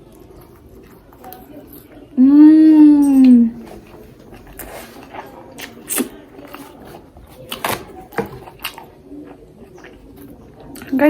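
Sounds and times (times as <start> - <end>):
person chewing crunchy food: 0.0 - 2.1, 3.5 - 11.0.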